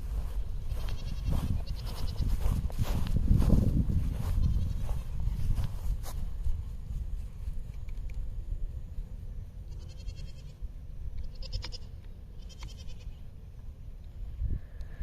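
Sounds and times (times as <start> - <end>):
wind rumble on microphone: 0.0 - 9.1, 14.0 - 15.0.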